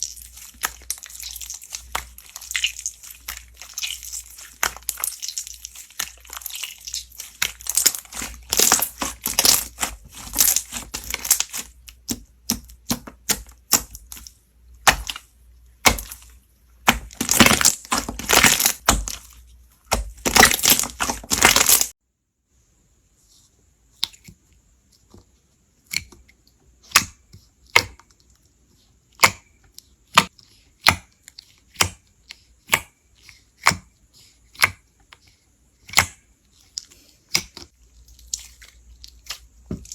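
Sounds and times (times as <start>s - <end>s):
slime crackling when squeezed: 0.0s - 11.7s, 16.9s - 19.3s, 20.0s - 21.9s
sharp slime pops: 4.6s - 15.2s, 15.8s - 19.3s.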